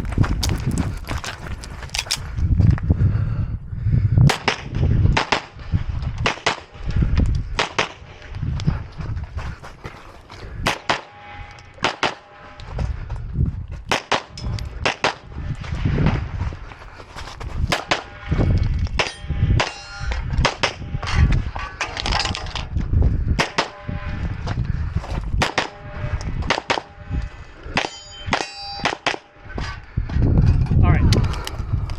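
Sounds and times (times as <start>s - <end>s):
gunshots: 4.3s - 5.6s
bullets clanging on steel targets: 19.0s - 20.2s, 27.8s - 29.2s.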